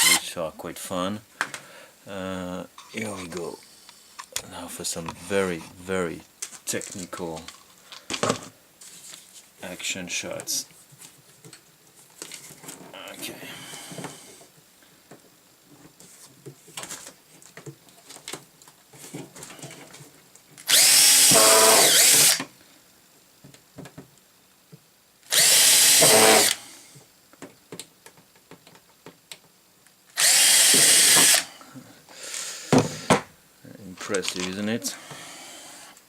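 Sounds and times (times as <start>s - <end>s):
power drill boring into plastic: 0.0s - 0.2s, 20.6s - 22.5s, 25.3s - 26.6s, 30.1s - 31.5s.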